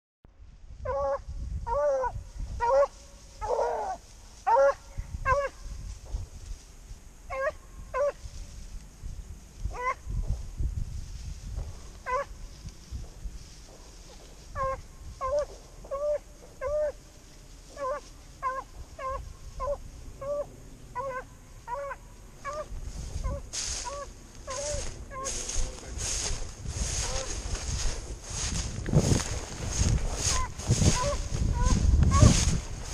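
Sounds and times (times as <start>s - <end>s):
dog baying: 0.9s - 5.5s, 14.6s - 17.0s.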